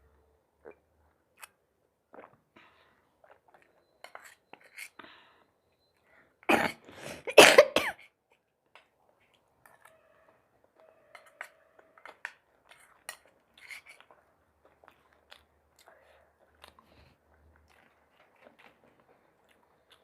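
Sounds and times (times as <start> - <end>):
person coughing: 6.5 - 8.0.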